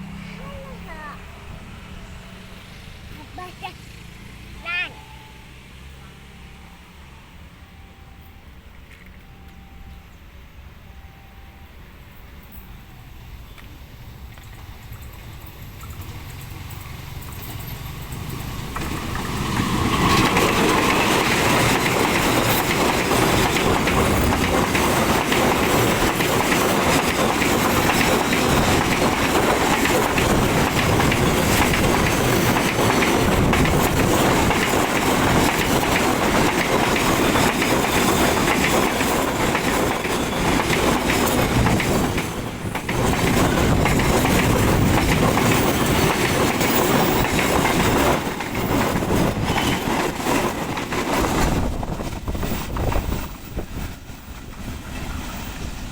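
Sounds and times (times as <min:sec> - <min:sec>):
freight train rumbling: 0:00.0 - 0:55.9
wagon wheels clattering over rail joints: 0:14.4 - 0:55.2.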